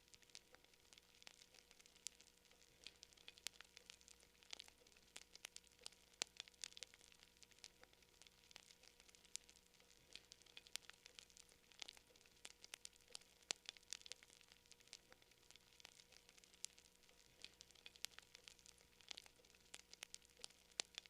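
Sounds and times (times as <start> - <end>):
campfire crackling: 0.0 - 21.0.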